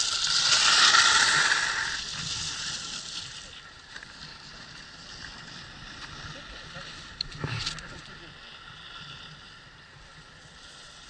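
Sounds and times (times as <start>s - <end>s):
skis scraping over snow: 0.0s - 7.8s.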